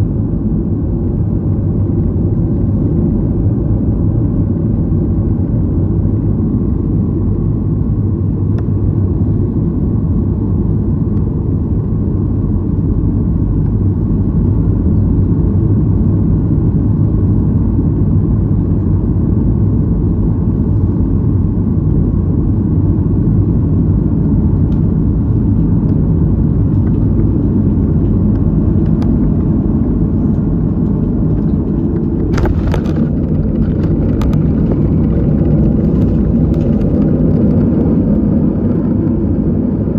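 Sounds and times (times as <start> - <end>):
airliner engines rumbling: 0.0 - 39.9
clicks and rattling: 31.4 - 37.6.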